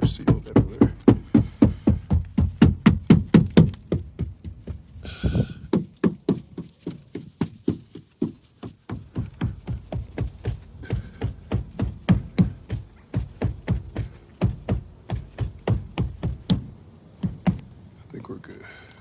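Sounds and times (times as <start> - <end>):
rubber mallet knocking: 0.0 - 5.0, 11.0 - 17.6.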